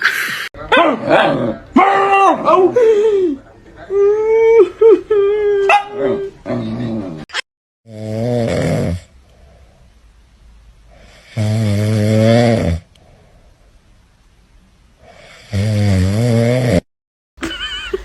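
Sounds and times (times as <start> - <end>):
loud rasping snores: 7.9 - 9.1, 11.0 - 12.9, 15.1 - 16.9
quiet breaths: 9.1 - 11.4, 12.8 - 15.6.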